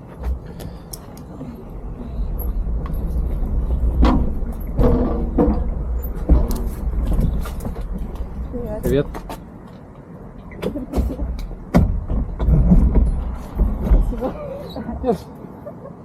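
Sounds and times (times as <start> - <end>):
motorcycle engine rumbling: 0.0 - 9.4.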